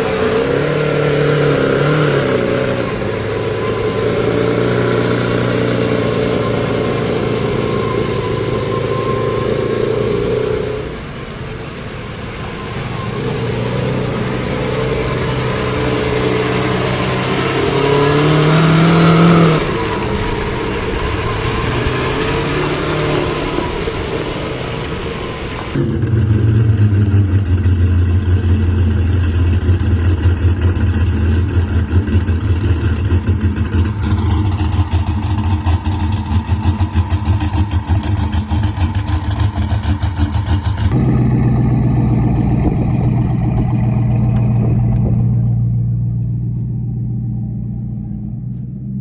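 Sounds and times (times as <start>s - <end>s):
car engine idling loudly: 23.2s - 48.7s.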